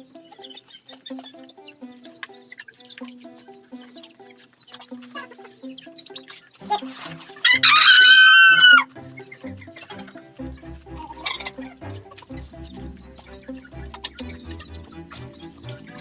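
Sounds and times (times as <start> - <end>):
background music: 0.0 - 16.0
rooster crowing: 7.4 - 8.9.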